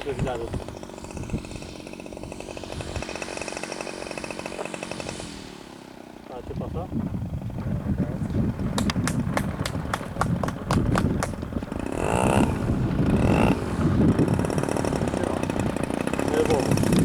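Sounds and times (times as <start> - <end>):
short pitch-sweeping sounds: 0.0 - 7.4
model aircraft engine idling: 0.0 - 17.0.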